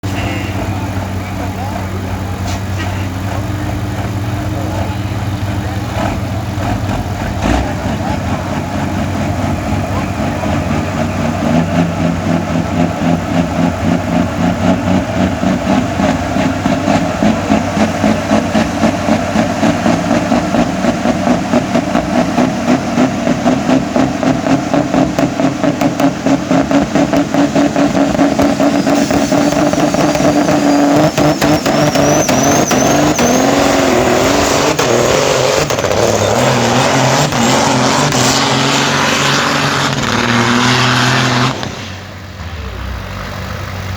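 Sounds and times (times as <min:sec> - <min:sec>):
truck engine working under load: 0:00.0 - 0:43.9
high rising whistle: 0:28.6 - 0:34.4.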